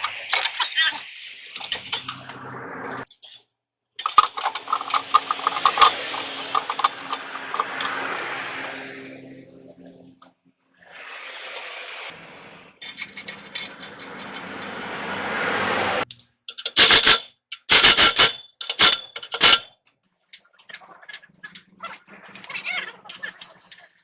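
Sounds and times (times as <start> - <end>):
steady hissing: 0.0 - 3.0, 10.8 - 16.0.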